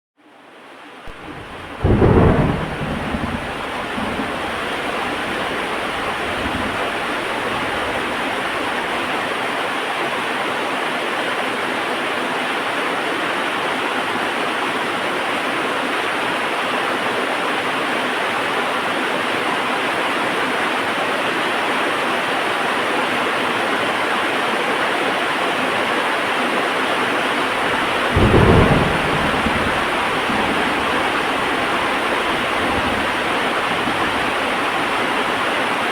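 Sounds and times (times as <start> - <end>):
thunder rumbling: 1.1 - 9.2, 27.4 - 35.9
heavy rain falling: 1.1 - 12.7, 16.1 - 35.9.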